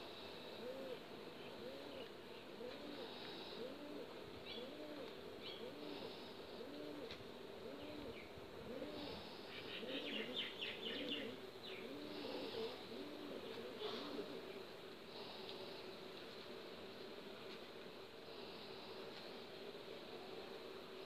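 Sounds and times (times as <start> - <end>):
bird cooing: 0.4 - 14.6
small birds chirping: 4.4 - 6.3, 9.0 - 14.6.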